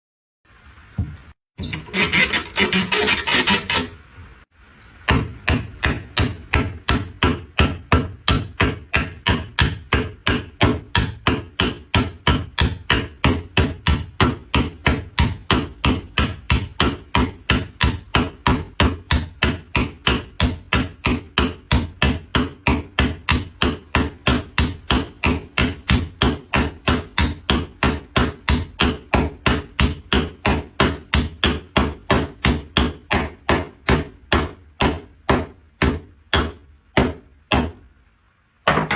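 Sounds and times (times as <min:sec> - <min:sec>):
rasping scrape: 0:01.6 - 0:04.0.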